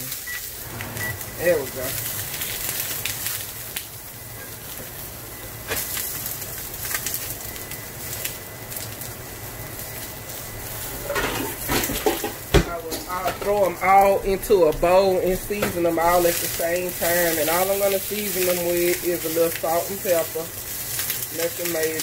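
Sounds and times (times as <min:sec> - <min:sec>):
range hood fan humming: 0:00.0 - 0:22.0
squash sizzling in oil: 0:00.0 - 0:22.0.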